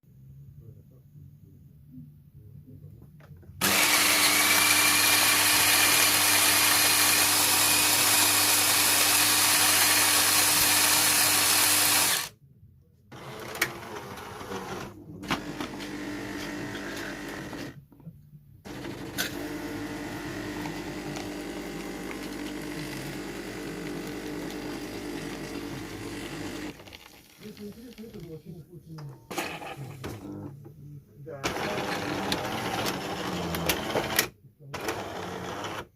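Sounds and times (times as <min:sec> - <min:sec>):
coffee grinder running: 0:03.6 - 0:12.3, 0:13.2 - 0:17.8, 0:18.7 - 0:28.3, 0:31.5 - 0:35.9
motor and pump running: 0:03.6 - 0:12.3, 0:13.1 - 0:17.7, 0:18.7 - 0:26.8.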